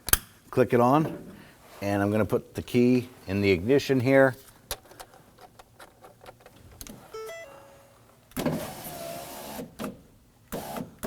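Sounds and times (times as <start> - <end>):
short electronic chime: 7.1 - 8.0.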